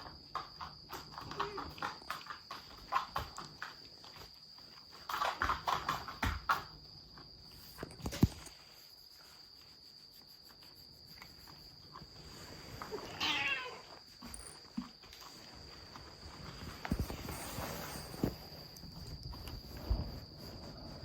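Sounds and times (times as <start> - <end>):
cat meowing: 13.0 - 13.9.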